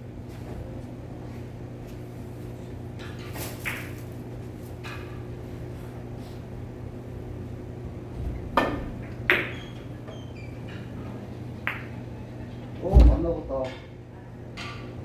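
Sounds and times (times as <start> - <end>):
steady low hum: 11.4 - 14.2.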